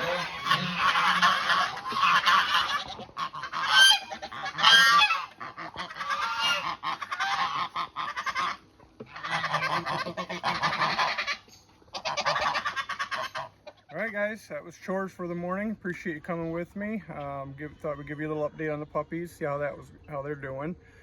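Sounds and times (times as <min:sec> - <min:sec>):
loud honking calls: 0:00.0 - 0:13.5
farm fowl calling and honking: 0:00.0 - 0:21.0.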